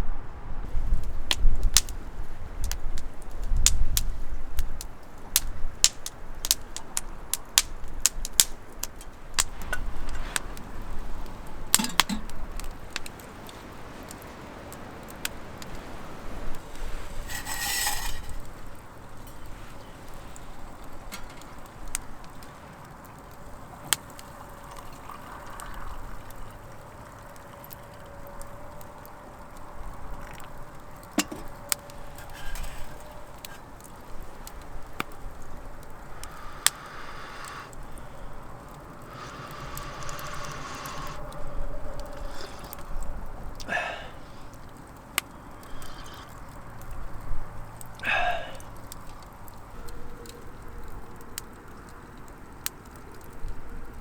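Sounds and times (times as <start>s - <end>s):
short hissing burst: 36.0s - 42.6s.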